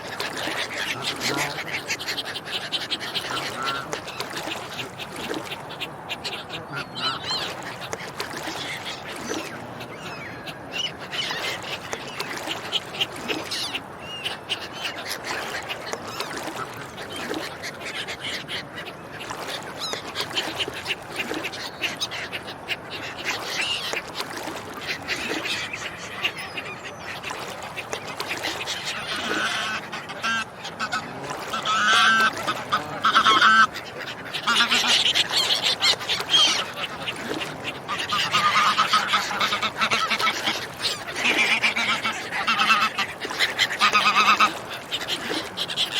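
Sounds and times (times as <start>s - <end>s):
ducks quacking: 0.0s - 45.9s
honking calls: 0.4s - 1.9s.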